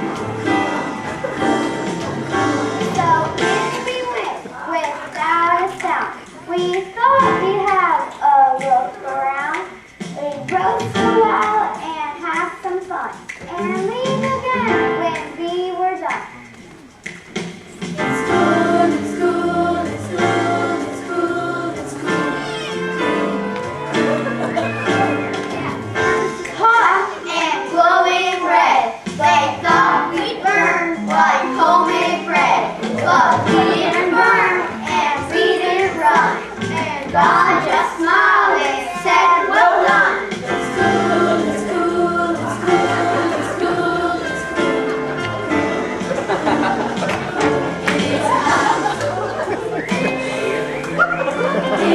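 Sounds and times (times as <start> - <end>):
choir singing held notes: 0.0 - 4.7, 17.7 - 51.9
backing music with bass line: 0.0 - 51.9.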